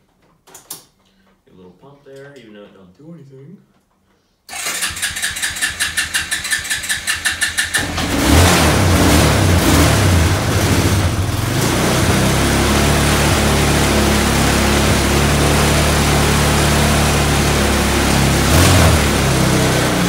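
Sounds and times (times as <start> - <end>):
electric starter cranking: 4.5 - 20.0
small engine running: 4.5 - 20.0.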